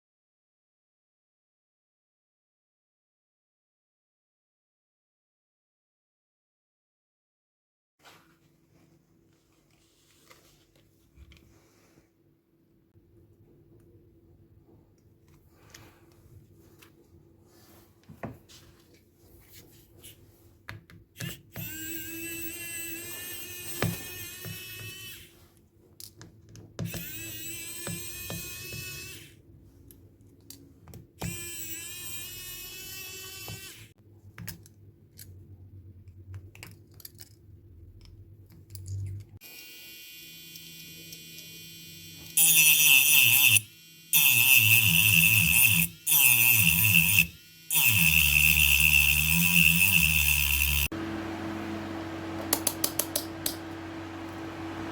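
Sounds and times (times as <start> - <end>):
small motor whirring: 21.2 - 25.3, 26.9 - 29.4, 31.3 - 33.9, 39.4 - 51.0
steady whine: 50.5 - 54.9.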